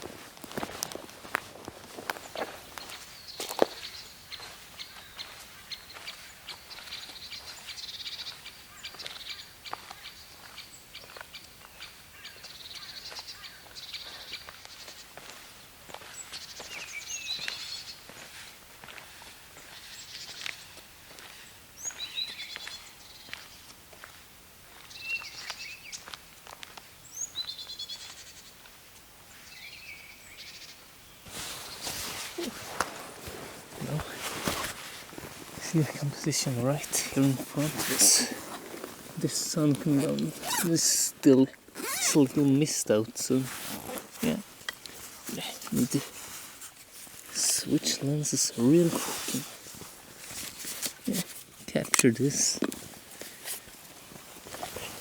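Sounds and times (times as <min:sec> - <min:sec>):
footsteps crunching on path: 0:00.0 - 0:28.8, 0:31.2 - 0:55.0
birds chirping: 0:01.6 - 0:15.3, 0:16.0 - 0:23.7, 0:29.3 - 0:46.1, 0:47.3 - 0:49.4
loud rustling: 0:31.3 - 0:41.1.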